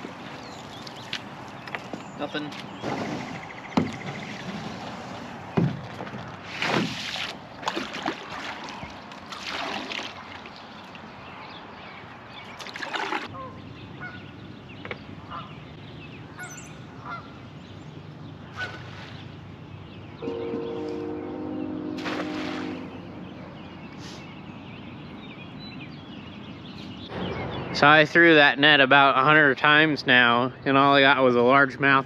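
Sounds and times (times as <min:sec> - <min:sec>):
geese honking: 0:16.4 - 0:17.4.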